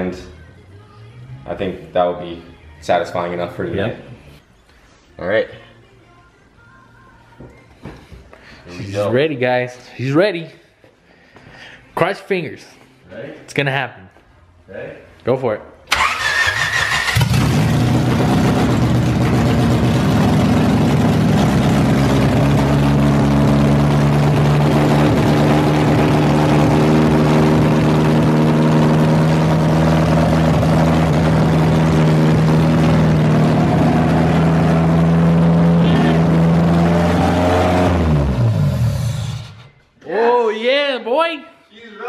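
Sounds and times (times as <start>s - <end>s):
engine winding down: 15.9s - 39.8s
car engine idling loudly: 17.2s - 37.2s.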